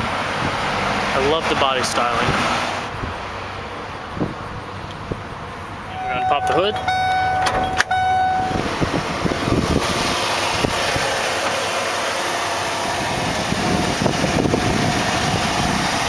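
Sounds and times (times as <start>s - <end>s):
car engine idling: 0.0s - 16.0s
electronic warning tone: 5.9s - 8.7s.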